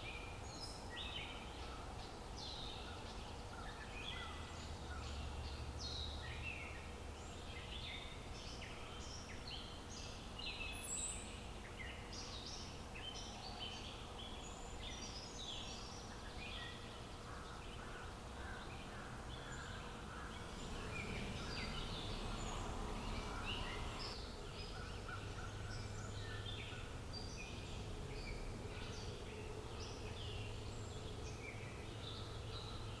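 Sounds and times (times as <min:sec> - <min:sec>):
small birds chirping: 0:00.0 - 0:33.0
low background rumble: 0:18.3 - 0:32.8.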